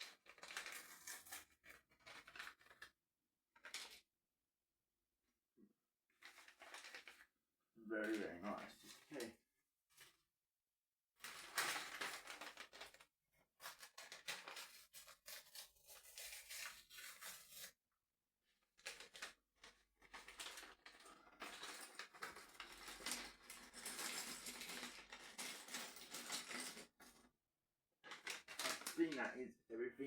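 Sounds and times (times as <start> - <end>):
plastic bags tearing and crinkling: 0.1 - 1.4, 28.1 - 29.2.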